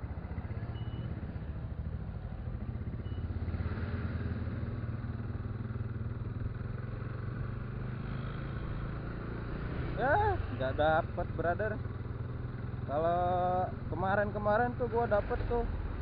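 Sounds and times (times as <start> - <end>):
motorcycle engine idling: 0.0 - 3.6, 4.3 - 9.3, 10.0 - 16.0
short faint high beeps: 0.7 - 1.2, 3.0 - 3.3.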